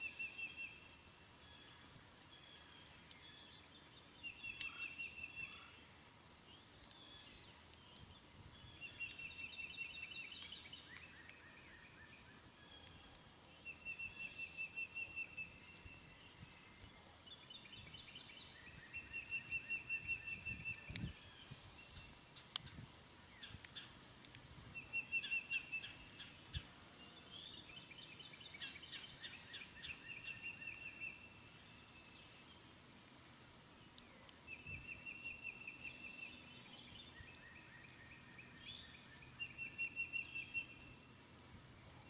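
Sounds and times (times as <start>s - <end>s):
campfire crackling: 0.0s - 42.0s
campfire pop: 16.2s - 21.2s, 21.8s - 24.4s.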